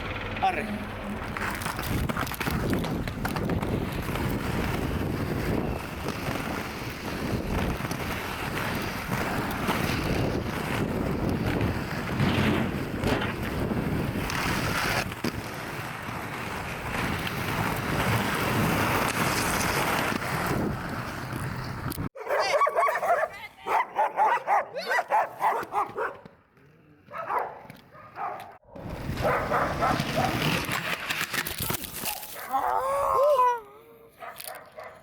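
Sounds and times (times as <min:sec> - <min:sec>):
dog barking: 0:22.2 - 0:26.3, 0:27.1 - 0:30.4, 0:34.2 - 0:35.0.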